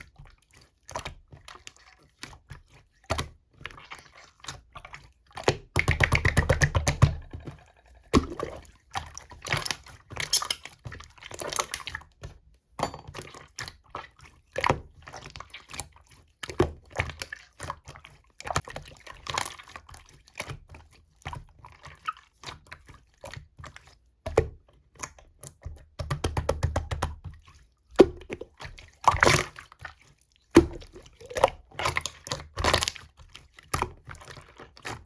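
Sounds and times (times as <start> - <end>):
slime squelching by hand: 0.1 - 12.1, 27.3 - 35.0.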